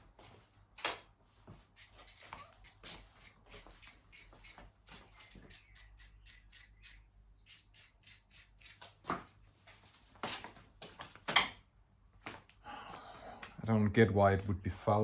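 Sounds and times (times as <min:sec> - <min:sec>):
spark plug being scrubbed: 0:01.8 - 0:08.9.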